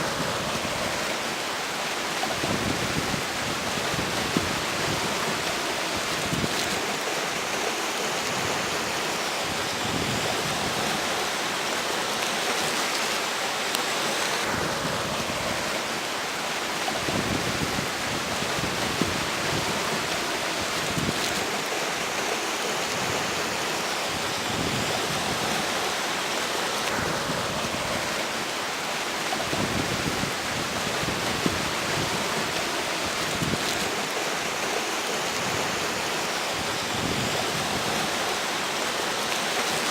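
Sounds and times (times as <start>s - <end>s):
river flowing: 0.0s - 39.9s
wind buffeting microphone: 2.3s - 7.0s, 16.9s - 21.7s, 29.2s - 34.2s.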